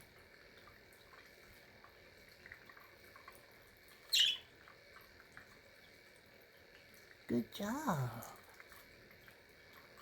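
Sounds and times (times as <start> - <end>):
budgie chirp: 4.1 - 4.5.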